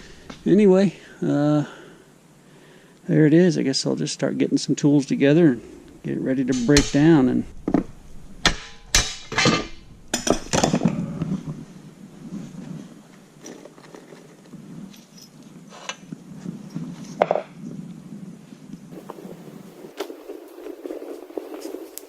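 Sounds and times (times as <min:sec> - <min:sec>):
metal hand tools clanking: 0:06.4 - 0:11.0.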